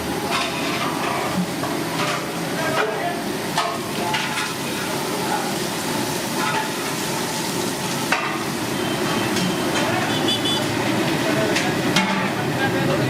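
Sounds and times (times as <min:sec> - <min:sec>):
food frying in a pot: 0:00.0 - 0:13.0.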